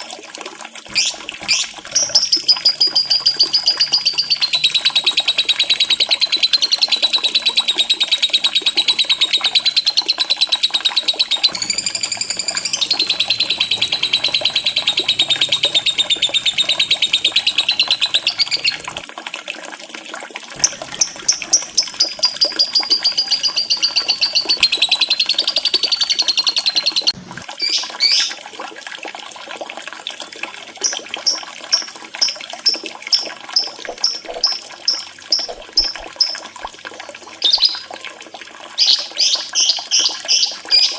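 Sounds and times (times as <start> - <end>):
faint running water: 0.0 - 40.9
lovebird chattering trill: 0.9 - 19.0, 20.6 - 28.3, 37.4 - 37.8.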